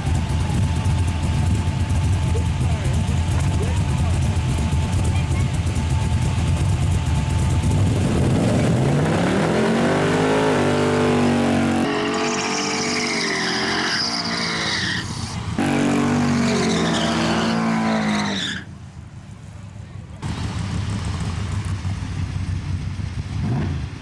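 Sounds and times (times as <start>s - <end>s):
truck engine revving: 0.0s - 18.7s
tires squealing: 7.6s - 18.8s.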